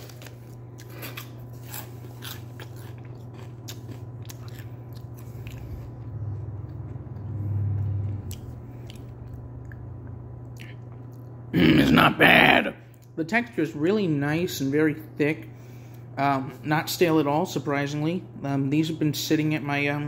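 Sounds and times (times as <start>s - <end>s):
person chewing crunchy puffs: 0.0s - 11.4s.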